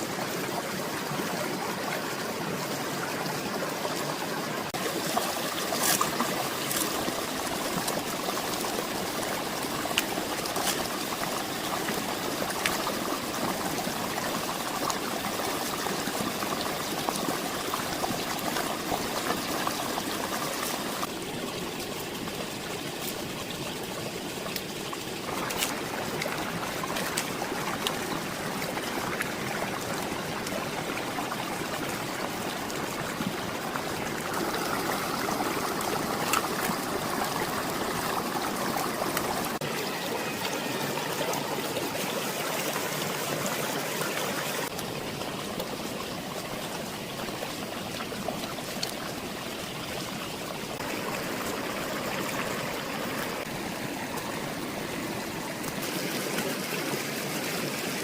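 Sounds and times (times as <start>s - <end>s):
water trickling and flowing: 0.0s - 58.0s.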